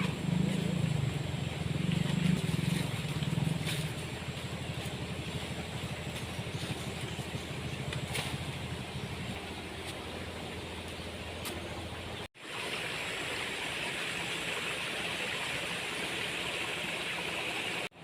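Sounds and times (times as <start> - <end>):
motor engine low pulsing hum: 0.0 - 17.9.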